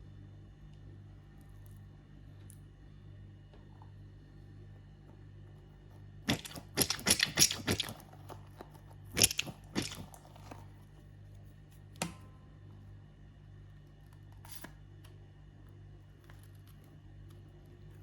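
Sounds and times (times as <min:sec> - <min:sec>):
sharp snap: 0:06.3 - 0:08.0, 0:09.2 - 0:10.1
crisp crackling and crunching: 0:06.3 - 0:08.1, 0:08.7 - 0:10.4.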